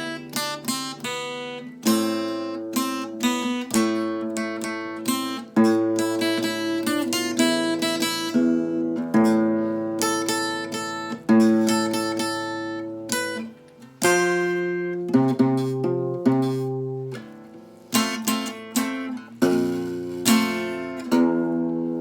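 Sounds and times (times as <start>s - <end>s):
guitar plucking a melody: 0.0s - 22.0s
struck guitar chord ringing: 18.3s - 22.0s.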